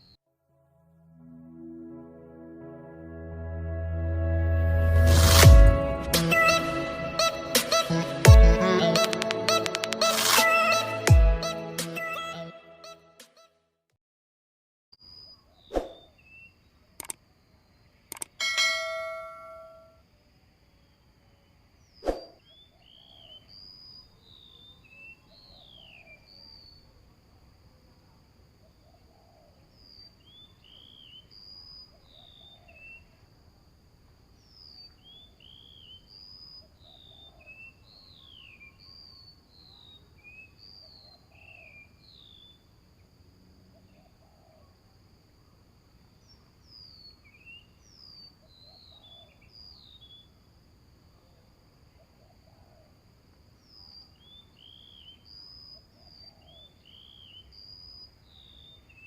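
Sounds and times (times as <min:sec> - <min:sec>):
small birds chirping: 0:21.8 - 0:26.9, 0:34.4 - 0:43.1, 0:46.2 - 0:50.4, 0:53.6 - 0:59.0
high insect drone: 0:41.3 - 0:47.8.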